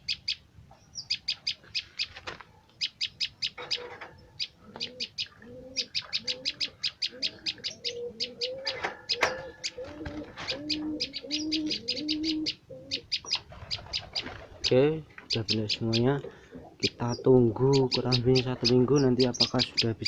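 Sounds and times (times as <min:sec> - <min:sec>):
bird sharp high chirps: 0:00.0 - 0:02.2, 0:02.8 - 0:09.8, 0:10.4 - 0:14.7, 0:15.3 - 0:16.1, 0:16.8 - 0:20.0
bird low cooing: 0:03.5 - 0:14.7.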